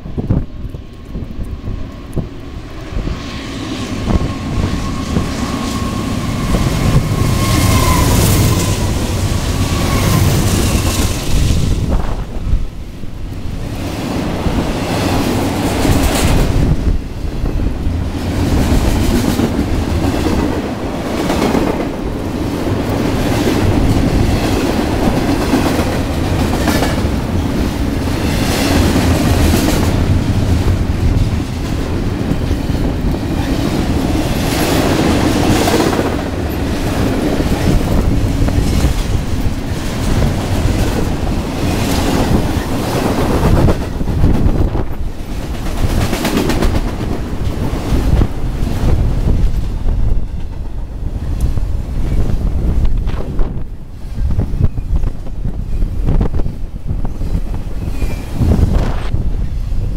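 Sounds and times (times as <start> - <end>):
freight train rumble: 0.0 - 59.9
locomotive whine: 0.0 - 59.9
rushes of wind: 0.0 - 59.9.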